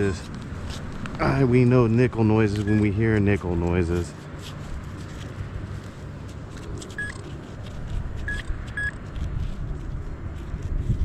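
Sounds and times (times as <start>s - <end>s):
metal detector beeps: 2.6s - 3.0s, 7.0s - 7.2s, 8.3s - 9.0s.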